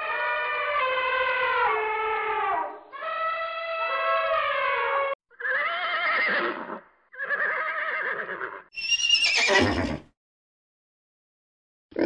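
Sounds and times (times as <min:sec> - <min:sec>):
horse neighing: 0:05.4 - 0:10.1.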